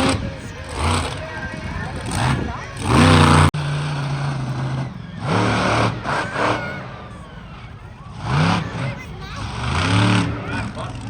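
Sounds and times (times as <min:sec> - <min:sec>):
racing engines revving: 0:00.0 - 0:11.0.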